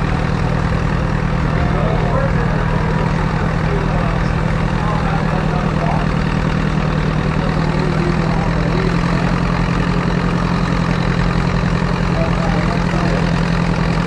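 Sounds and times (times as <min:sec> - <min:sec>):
tractor engine idling: 0:00.0 - 0:14.0.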